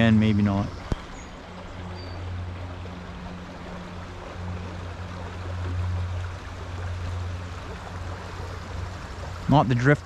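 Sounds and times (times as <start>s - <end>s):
stream rushing over a riffle: 2.3s - 10.0s.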